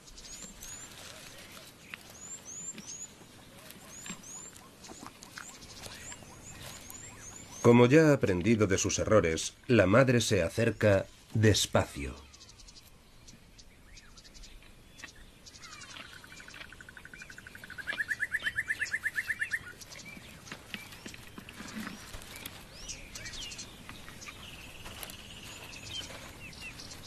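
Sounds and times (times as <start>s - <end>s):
birds calling and chirping: 0.0s - 27.0s
rapid bird trill: 15.5s - 21.2s.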